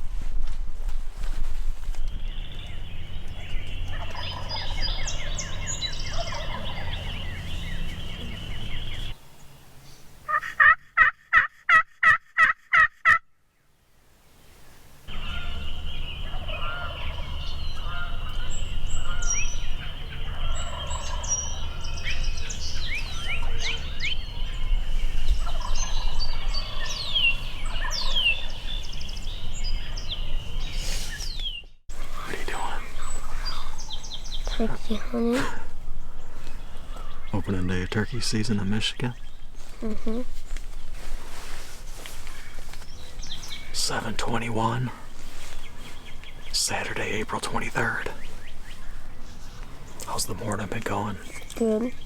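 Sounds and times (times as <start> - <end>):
low wind rumble: 0.0 - 10.3, 14.1 - 44.2
songbirds chirping: 1.7 - 11.1, 13.4 - 52.0
turkey yelps: 3.9 - 7.1, 10.3 - 13.2, 15.1 - 22.2.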